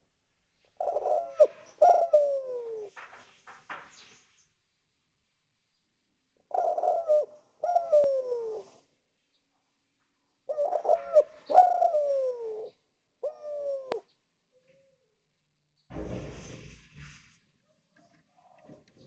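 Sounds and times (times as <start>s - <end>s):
dove cooing: 0.8s - 3.2s, 6.5s - 8.8s, 10.5s - 15.0s.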